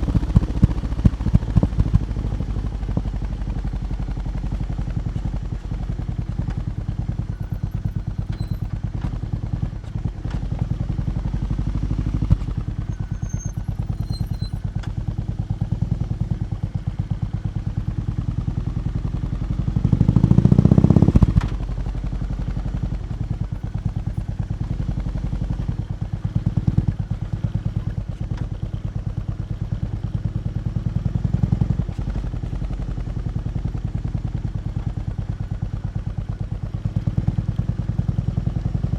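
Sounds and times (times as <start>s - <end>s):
motorcycle engine idling: 0.0s - 38.9s
engine revving: 19.8s - 21.6s.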